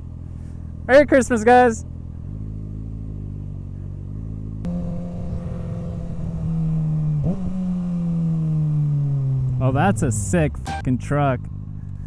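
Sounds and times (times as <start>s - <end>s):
motorcycle engine running: 0.0s - 12.0s
sharp click: 10.7s - 10.9s.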